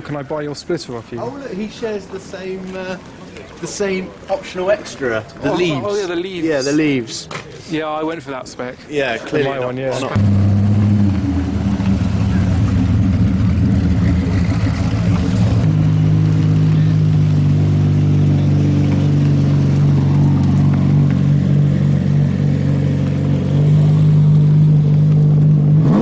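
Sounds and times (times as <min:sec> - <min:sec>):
car engine at low revs: 0:10.1 - 0:26.0
car engine pulling away: 0:10.1 - 0:26.0.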